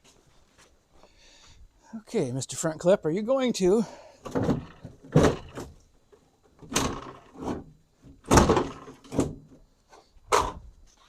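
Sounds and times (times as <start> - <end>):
sheet metal clunks and bangs: 4.3 - 5.8, 8.2 - 9.5.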